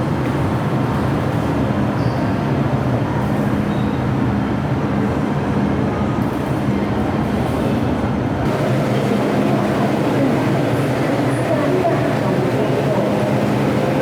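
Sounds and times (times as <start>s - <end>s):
electric train running on track: 8.5s - 14.0s.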